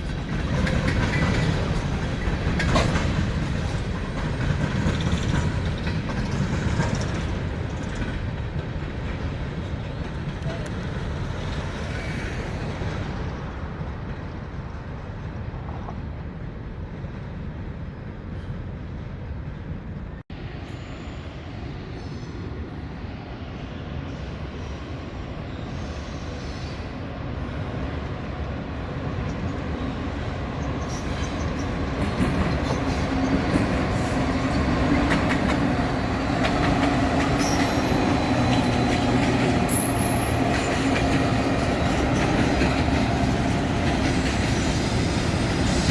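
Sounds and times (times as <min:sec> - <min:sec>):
train wheels on rails: 0:00.0 - 0:45.9
wheel squeals: 0:36.4 - 0:45.9.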